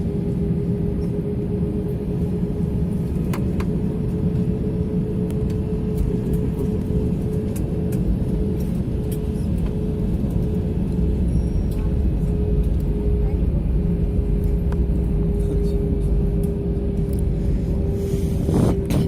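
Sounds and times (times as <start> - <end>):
aircraft cabin rumble: 0.0 - 19.0
steady hum: 12.3 - 19.0.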